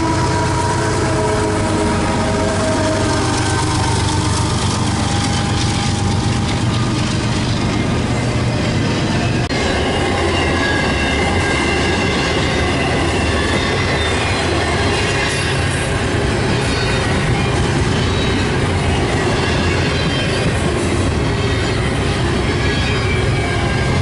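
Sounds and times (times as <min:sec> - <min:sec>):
train wheel and rail noise: 0:00.0 - 0:24.0
wheels clicking over rail joints: 0:02.4 - 0:08.1
wheel squeal: 0:02.9 - 0:24.0.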